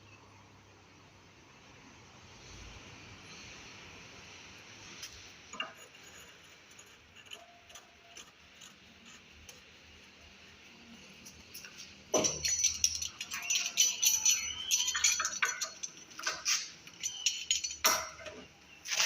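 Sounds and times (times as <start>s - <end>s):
low steady hiss: 0.0s - 7.4s
small hard objects clicking: 11.5s - 18.2s.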